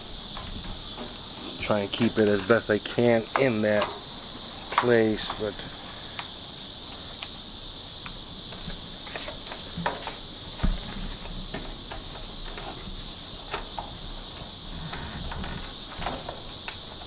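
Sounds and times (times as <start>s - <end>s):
high insect chorus: 0.0s - 17.0s
hands clicking weatherstripping: 3.2s - 4.0s, 4.6s - 6.3s.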